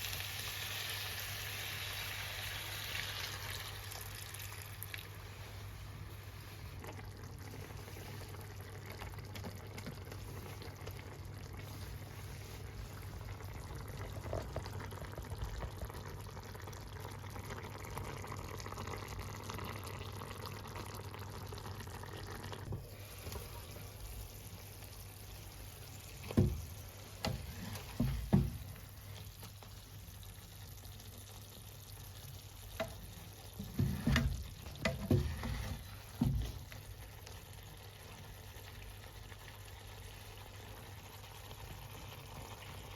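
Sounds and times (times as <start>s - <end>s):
food sizzling in a pan: 0.0s - 6.8s, 17.0s - 42.9s.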